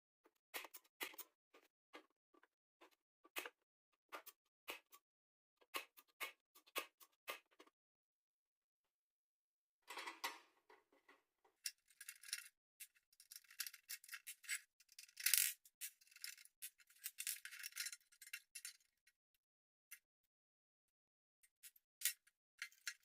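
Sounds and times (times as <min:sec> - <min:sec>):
tools and parts clinking: 0:11.0 - 0:18.9, 0:22.0 - 0:23.0.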